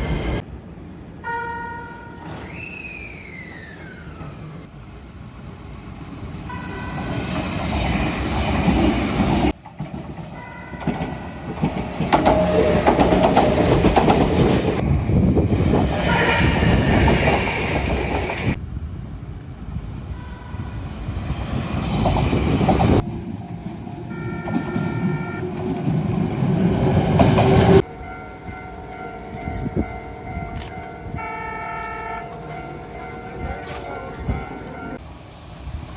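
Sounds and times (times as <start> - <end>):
train wheel and rail noise: 0.0 - 35.9
train horn blasts: 1.2 - 2.4, 6.5 - 7.2, 16.0 - 16.8, 20.1 - 20.8, 24.1 - 25.6, 29.0 - 35.0.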